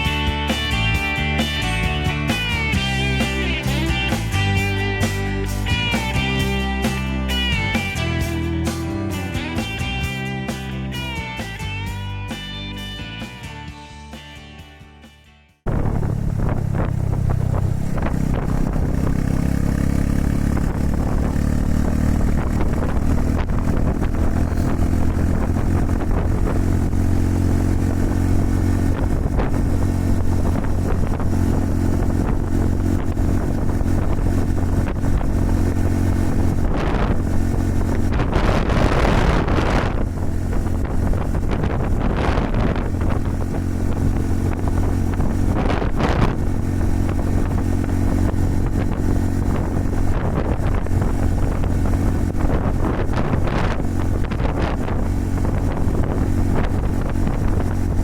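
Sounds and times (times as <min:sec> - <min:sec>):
motorcycle engine cruising: 0:00.0 - 0:58.0
wind buffeting microphone: 0:15.6 - 0:58.0.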